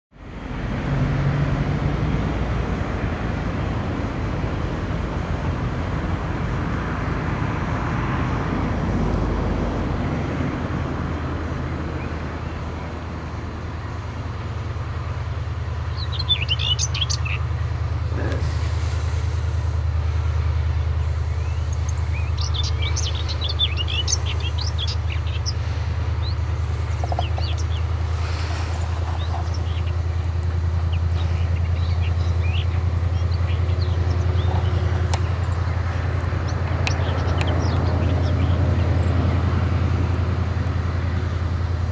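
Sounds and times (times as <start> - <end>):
locomotive engine drone: 0.1 - 41.9
birds chirping: 11.8 - 41.9.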